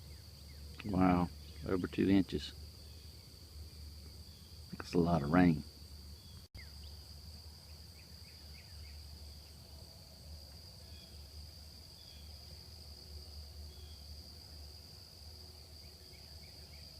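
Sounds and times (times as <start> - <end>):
faint bird chirps: 0.0 - 5.5, 6.1 - 9.8, 10.7 - 12.4, 13.6 - 14.1, 15.6 - 16.9
night insect chorus: 0.0 - 16.9.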